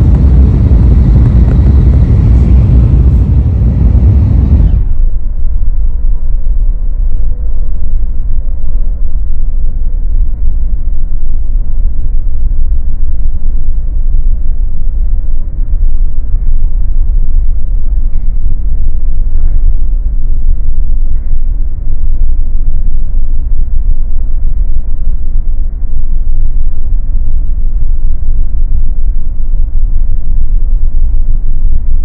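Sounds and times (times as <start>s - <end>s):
train rumbling inside cabin: 0.0s - 5.3s.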